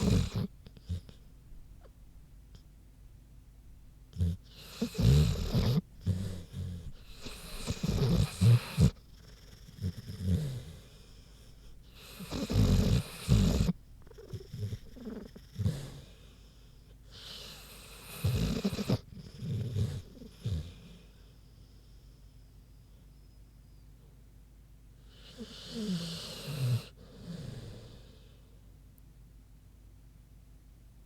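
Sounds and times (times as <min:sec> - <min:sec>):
dog snoring: 0:00.0 - 0:01.2, 0:04.1 - 0:21.4, 0:25.0 - 0:28.5
dog breathing softly: 0:00.0 - 0:01.4, 0:04.2 - 0:23.8, 0:25.0 - 0:28.7.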